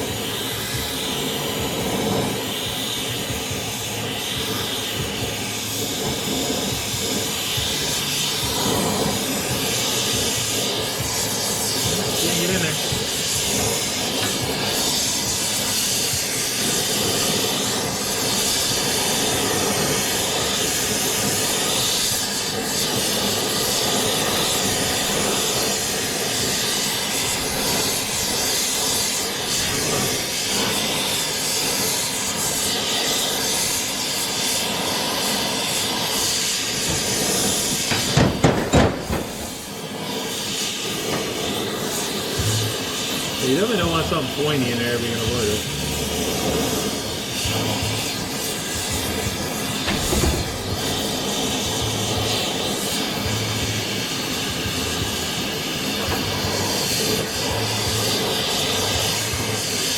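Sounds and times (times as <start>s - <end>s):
gas torch flame hissing: 0.0s - 59.9s
sharp knocks: 36.9s - 39.4s, 49.9s - 50.7s.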